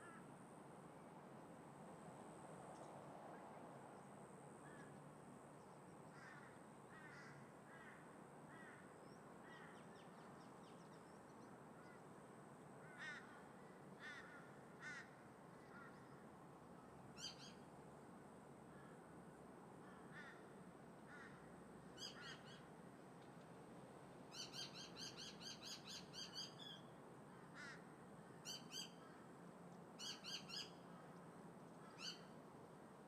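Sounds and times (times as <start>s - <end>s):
wind: 0.0s - 33.0s
crows cawing: 6.2s - 8.8s, 12.8s - 13.4s, 14.0s - 16.0s, 19.8s - 20.5s, 21.1s - 21.5s, 27.4s - 27.9s.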